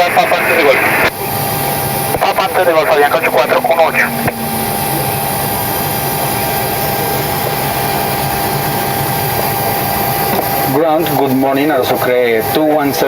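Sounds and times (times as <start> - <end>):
thin high whine: 1.2 - 9.3
low hum: 1.5 - 9.2.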